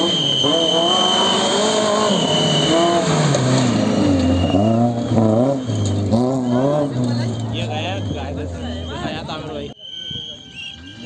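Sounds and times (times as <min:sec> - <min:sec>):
rally car engine revving: 0:00.0 - 0:09.7.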